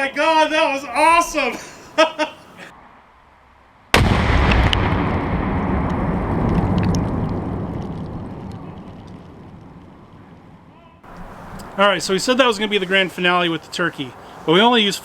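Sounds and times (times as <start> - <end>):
rifle shot: 3.9 - 7.5
loud explosion blast: 3.9 - 10.8
long rumbling boom: 3.9 - 11.0.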